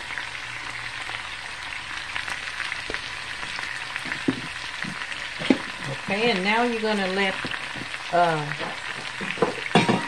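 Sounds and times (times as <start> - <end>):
potatoes frying in oil: 0.0 - 10.0
oil crackling pops: 2.2 - 6.1, 7.3 - 9.8.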